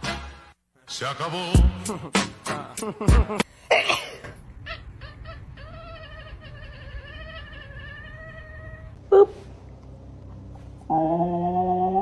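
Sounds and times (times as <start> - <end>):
cat yowling: 5.1 - 9.3.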